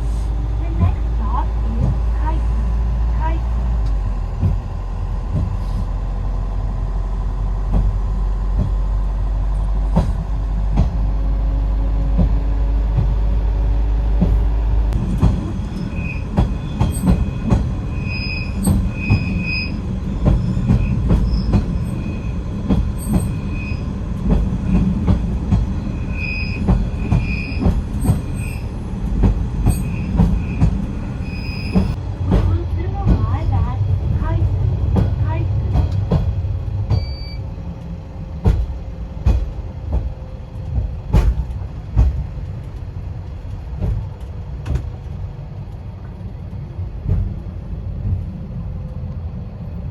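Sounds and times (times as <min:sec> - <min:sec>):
high-pitched wheel squeal: 0:15.8 - 0:17.0, 0:17.9 - 0:19.8, 0:23.0 - 0:23.9, 0:25.9 - 0:28.7, 0:29.7 - 0:32.0.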